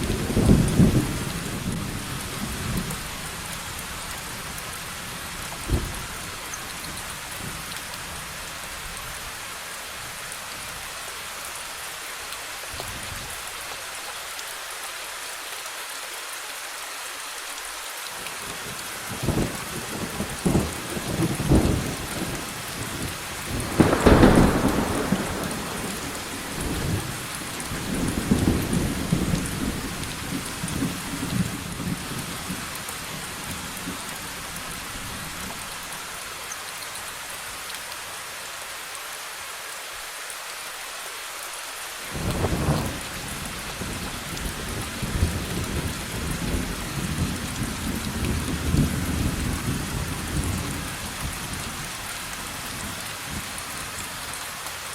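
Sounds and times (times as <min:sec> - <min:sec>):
thunder clap and rumbling: 0:00.0 - 0:03.0, 0:19.2 - 0:32.6, 0:42.2 - 0:50.8
steady rain: 0:00.0 - 0:54.9.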